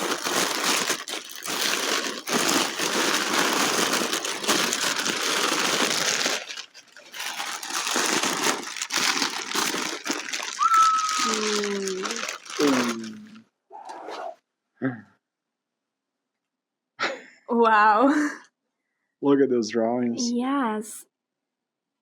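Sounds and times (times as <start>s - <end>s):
wrapping paper crinkling: 0.0s - 13.4s.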